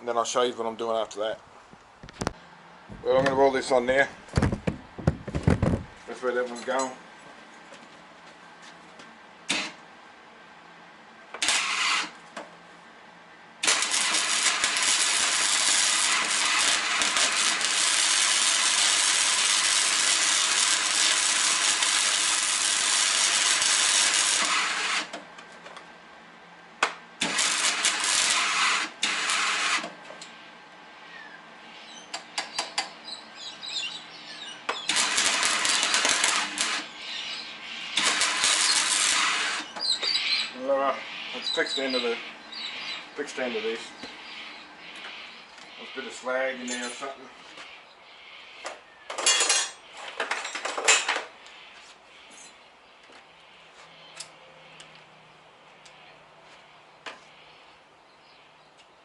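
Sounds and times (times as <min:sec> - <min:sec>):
welding arc crackling and hissing: 0:11.4 - 0:12.1, 0:13.6 - 0:25.1, 0:27.2 - 0:29.8, 0:34.8 - 0:47.1.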